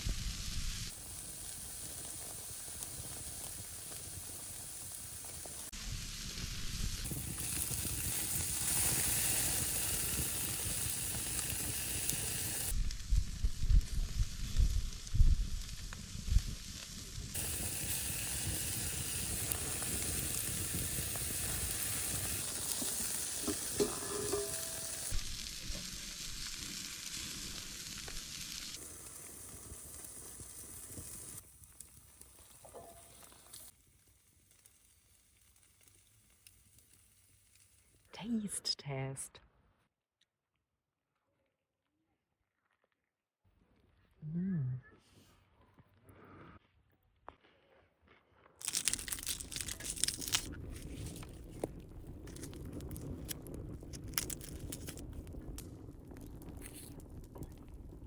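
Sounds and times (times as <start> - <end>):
food sizzling in a pan: 0.0 - 38.0, 48.6 - 55.2.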